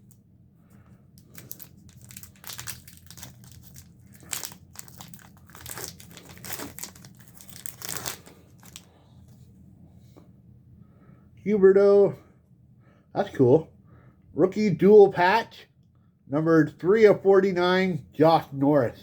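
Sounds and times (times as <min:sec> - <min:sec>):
wrapper being torn open: 0:01.2 - 0:08.9
wrapper crinkling: 0:01.2 - 0:08.9.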